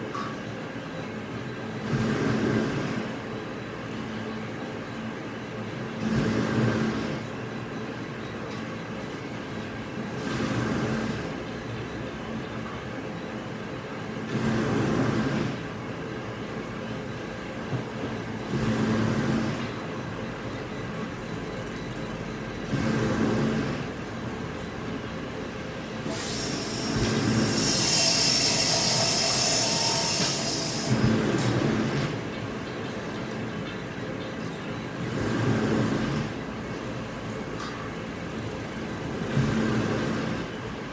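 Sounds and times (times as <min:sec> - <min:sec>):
mill machinery running: 0:01.0 - 0:40.9
loud hiss: 0:26.1 - 0:31.2.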